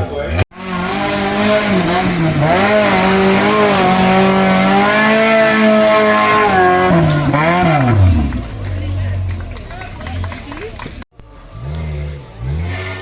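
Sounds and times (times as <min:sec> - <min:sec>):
vehicle engine running hard: 0:00.4 - 0:13.0.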